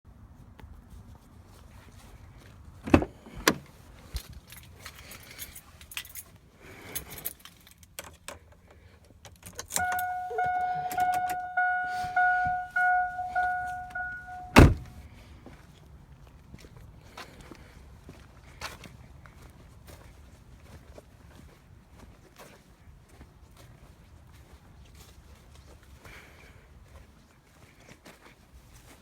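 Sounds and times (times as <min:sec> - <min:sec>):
keys jangling: 0:04.2 - 0:06.3, 0:06.9 - 0:08.2
car warning chime pinging: 0:09.8 - 0:15.0
loud door slam: 0:14.4 - 0:14.9.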